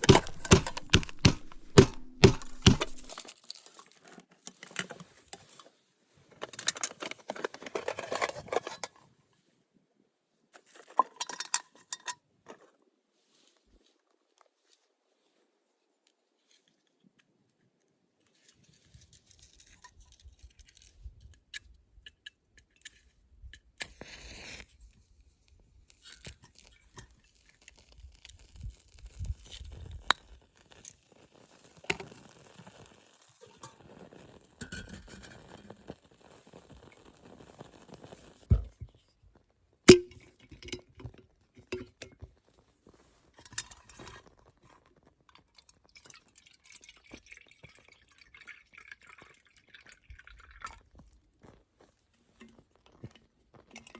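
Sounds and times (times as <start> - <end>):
cookware clinking and tapping: 0.0 - 3.1
loud sharp knocks: 0.0 - 3.1.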